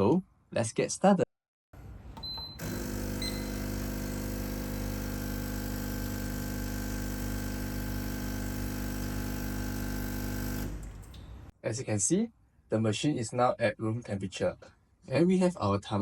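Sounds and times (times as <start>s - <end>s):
espresso machine pump humming: 2.5s - 11.5s.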